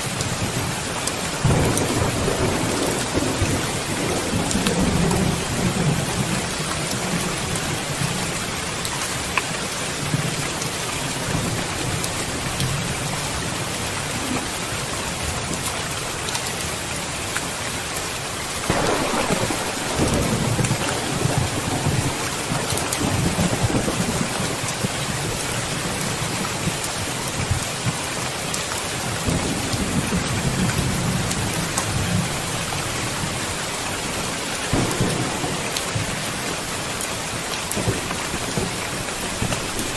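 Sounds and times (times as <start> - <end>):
steady rain falling: 0.0 - 39.9
rolling thunder: 1.4 - 8.1, 18.7 - 26.4, 34.6 - 39.9.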